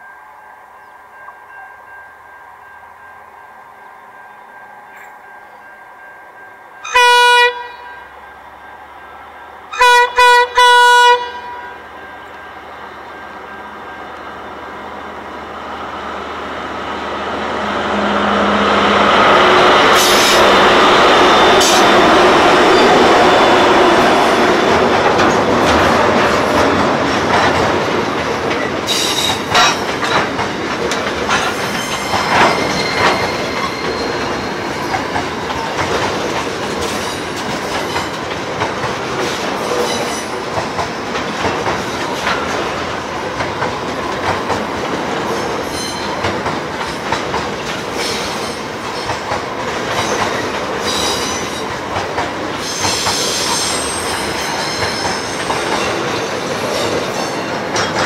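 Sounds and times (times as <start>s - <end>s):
diesel locomotive engine: 0.0s - 58.0s
train horn blasts: 6.6s - 8.9s, 9.6s - 12.5s
wheels clicking over rail joints: 24.0s - 58.0s.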